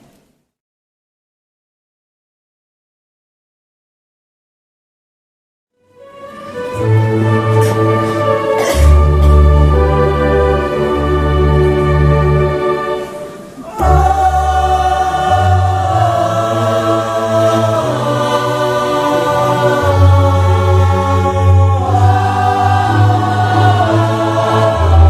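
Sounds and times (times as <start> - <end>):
low held accompaniment notes: 6.0 - 25.0
choir singing a hymn: 6.4 - 25.0.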